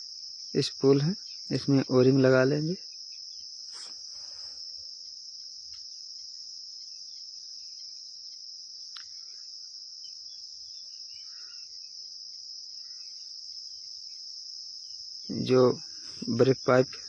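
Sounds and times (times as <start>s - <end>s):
crickets trilling: 0.0s - 17.0s
faint click: 8.9s - 9.1s.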